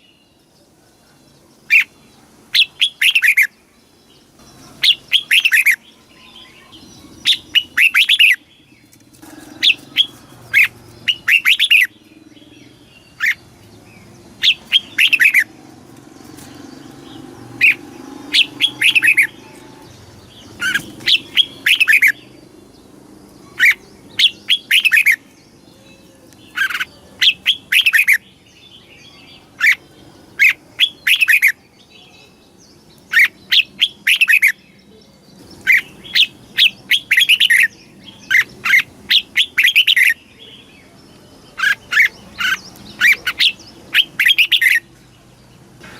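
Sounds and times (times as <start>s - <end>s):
bulbul singing whistled notes: 4.5s - 13.4s, 14.4s - 15.6s, 16.6s - 22.4s, 23.4s - 29.8s, 30.4s - 40.6s.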